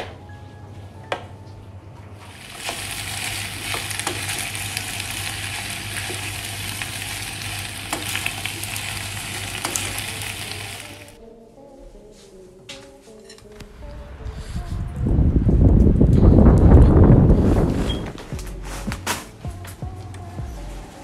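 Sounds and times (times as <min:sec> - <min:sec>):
food sizzling in a pan: 0:02.3 - 0:11.2.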